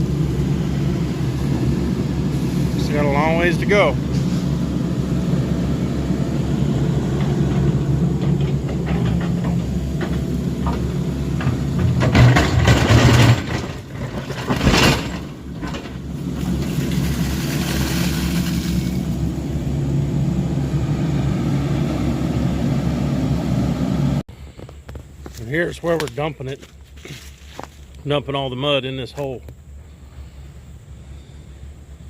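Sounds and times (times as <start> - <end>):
heavy digger engine running: 0.0 - 25.4.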